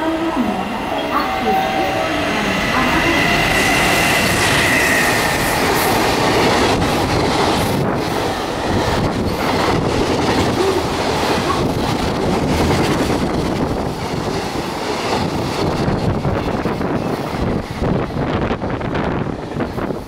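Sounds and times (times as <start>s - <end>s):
electric locomotive high tone: 0.0s - 6.9s.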